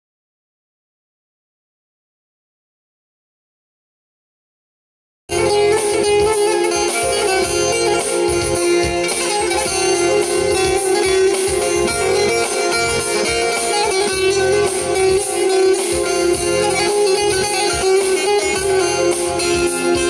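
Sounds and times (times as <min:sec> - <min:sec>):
plucked strings: 0:05.3 - 0:20.0.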